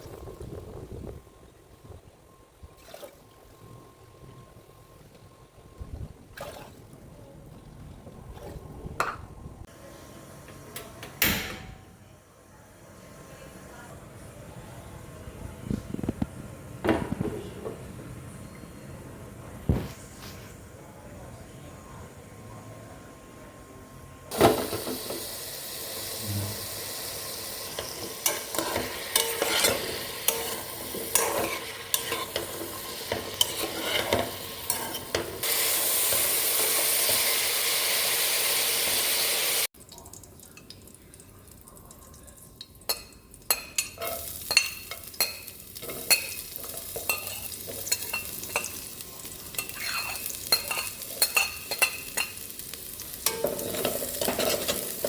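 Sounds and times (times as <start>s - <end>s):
loud steady sizzle: 23.8s - 55.0s
food frying in a pan: 24.3s - 55.0s
spatula scraping a pan: 27.8s - 35.4s, 49.6s - 52.4s, 53.2s - 55.0s.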